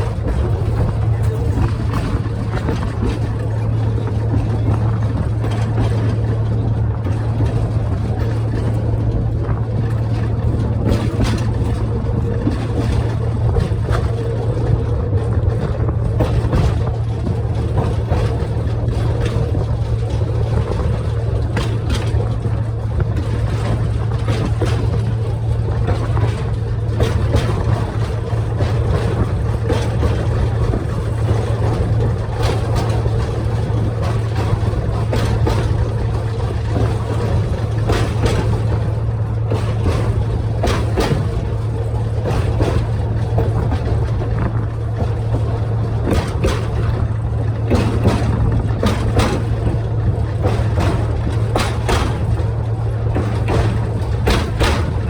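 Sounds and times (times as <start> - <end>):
clicks and knocks from running gear: 0.0 - 55.0
train engine drone: 0.0 - 55.0.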